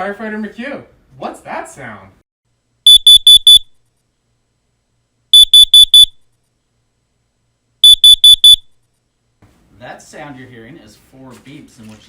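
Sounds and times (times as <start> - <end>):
carbon monoxide alarm beeping: 2.9 - 3.7, 5.4 - 6.2, 7.8 - 8.6.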